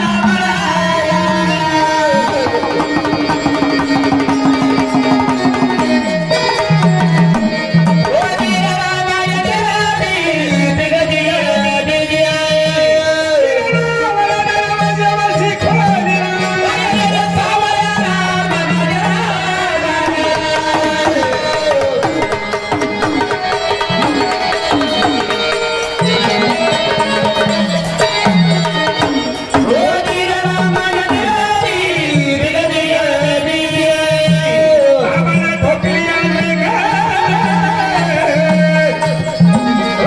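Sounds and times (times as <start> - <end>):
hand drum accompaniment: 0.0 - 40.0
melody instrument playing: 20.2 - 31.2.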